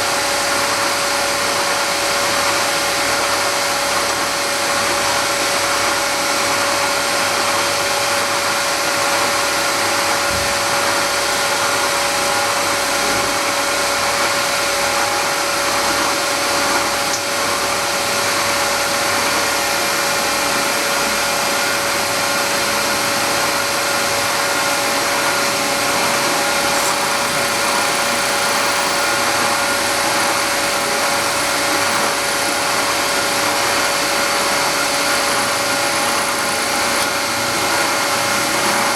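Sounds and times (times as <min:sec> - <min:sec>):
milling machine cutting metal: 0:22.4 - 0:38.8.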